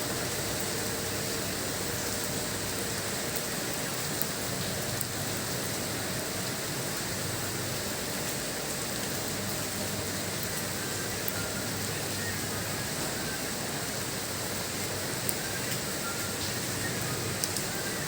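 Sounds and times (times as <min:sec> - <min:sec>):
heavy rain hissing: 0:00.0 - 0:18.0
faint drip ticks: 0:02.7 - 0:05.2, 0:10.3 - 0:13.3, 0:15.2 - 0:18.0.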